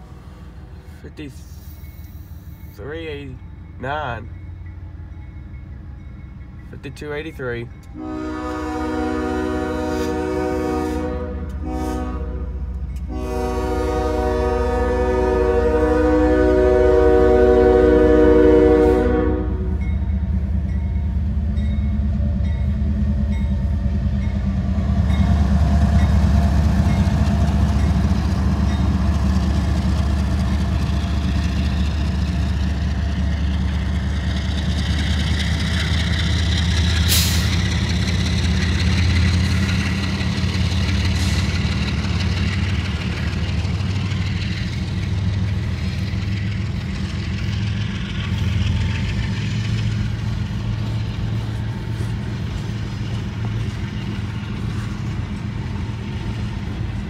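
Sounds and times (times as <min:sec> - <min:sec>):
freight train rumbling past: 0:00.0 - 0:57.0
crossing bell ringing: 0:01.2 - 0:08.3, 0:19.4 - 0:29.2
locomotive horn blowing: 0:07.9 - 0:19.8.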